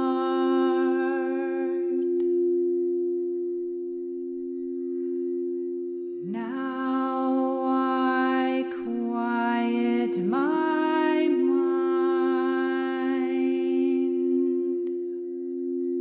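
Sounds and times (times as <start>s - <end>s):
person humming: 0.0s - 2.3s, 6.2s - 15.2s
singing bowl ringing: 0.0s - 16.0s.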